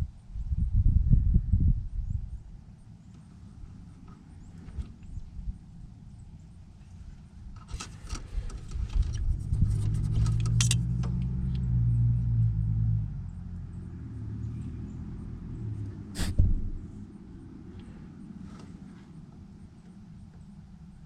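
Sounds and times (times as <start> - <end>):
metal parts clattering and clicking: 10.1 - 10.8.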